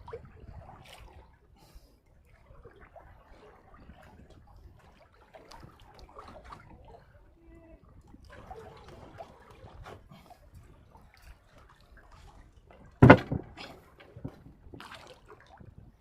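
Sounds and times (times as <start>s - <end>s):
water sounds: 0.0s - 16.0s
loud thump: 13.0s - 14.4s
knocking on a boat: 13.0s - 14.5s.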